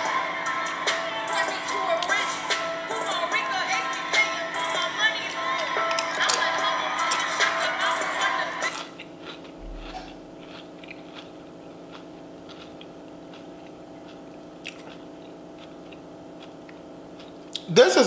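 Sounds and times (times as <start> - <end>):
low steady hum: 0.0 - 18.0
person chewing food: 5.6 - 17.7
wet mouth clicks: 13.6 - 16.0.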